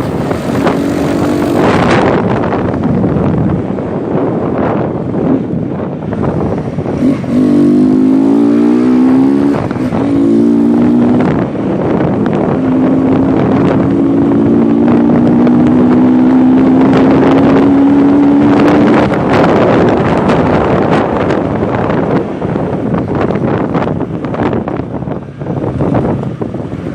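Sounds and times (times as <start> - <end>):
motorcycle engine revving: 0.0 - 3.3, 6.1 - 26.9
wind noise on microphone: 0.0 - 26.9.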